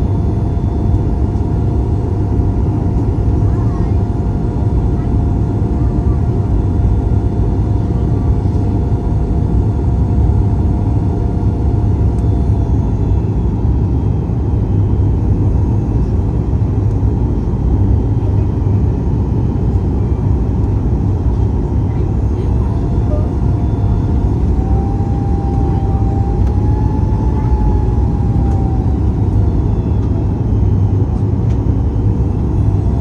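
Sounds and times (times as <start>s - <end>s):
airplane cabin engine rumble: 0.0s - 33.0s.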